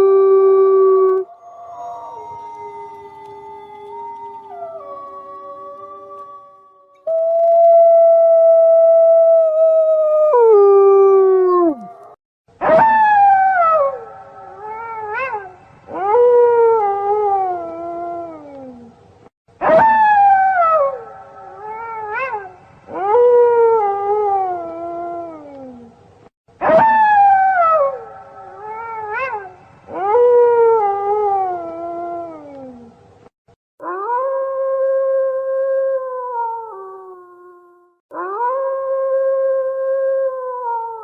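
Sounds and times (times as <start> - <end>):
wolf howling: 0.0 - 18.9.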